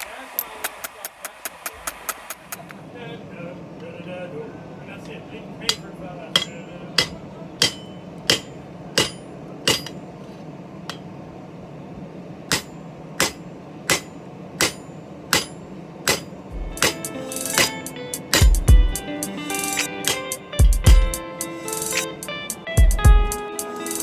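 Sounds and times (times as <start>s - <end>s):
steady low hum: 0.0s - 23.5s
hammer striking metal: 5.6s - 10.1s, 10.8s - 11.1s, 12.5s - 18.8s, 19.8s - 20.8s.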